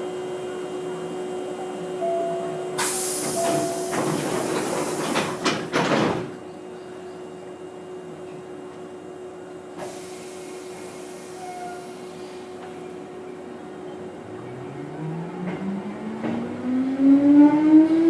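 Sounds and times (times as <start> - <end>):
air hiss of train doors: 2.8 - 6.4, 9.8 - 13.0
doors knocking shut: 3.4 - 6.4.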